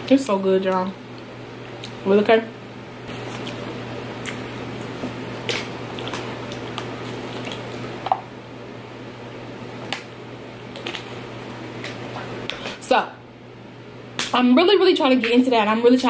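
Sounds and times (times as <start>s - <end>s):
low steady hum: 0.0s - 16.0s
wet chewing: 1.1s - 2.0s, 3.1s - 8.0s.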